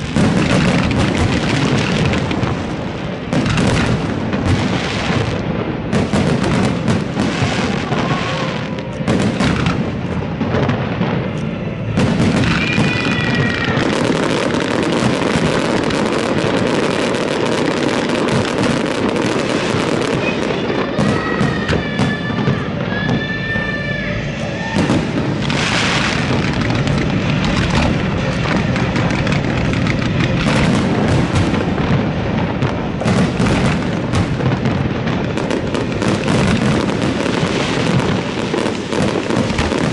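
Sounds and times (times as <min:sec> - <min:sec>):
fireworks bangs and crackling: 0:00.0 - 0:39.9
shrill firework whistling: 0:11.8 - 0:39.9.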